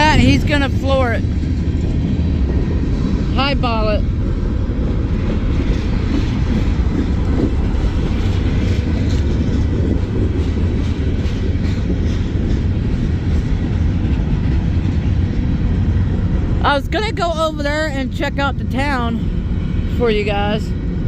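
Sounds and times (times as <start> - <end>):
freight train wheels rumbling on rails: 0.0 - 21.0.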